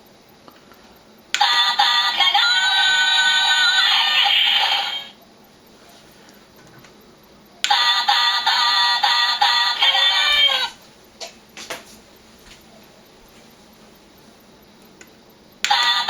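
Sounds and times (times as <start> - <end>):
toy speaker cartoon singing: 1.4 - 5.1, 7.7 - 10.8, 15.7 - 16.0.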